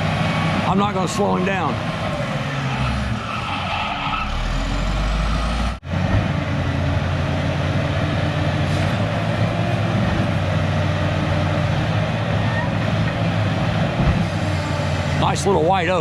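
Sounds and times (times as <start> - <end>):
bulldozer diesel engine running: 4.2 - 16.0.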